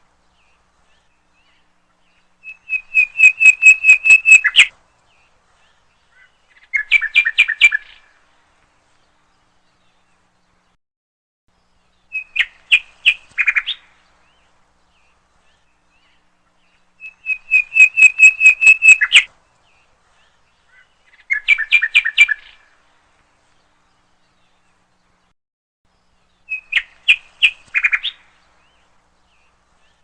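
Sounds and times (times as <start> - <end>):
bird chirping rapidly: 2.4 - 4.7, 6.5 - 8.0, 17.0 - 19.3, 20.7 - 22.6, 26.4 - 30.0.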